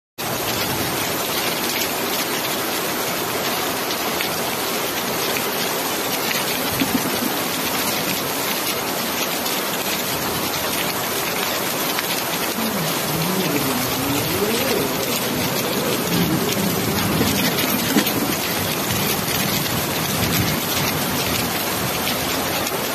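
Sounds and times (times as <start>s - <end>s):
rain falling: 0.2s - 22.9s.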